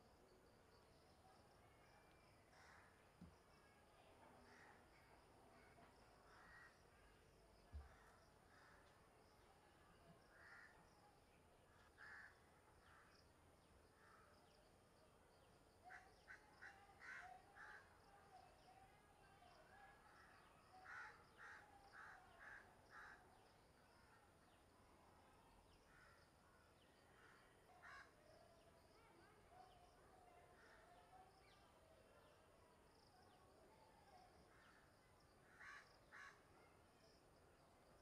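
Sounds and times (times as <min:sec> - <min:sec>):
faint bird calls: 0:34.4 - 0:36.8.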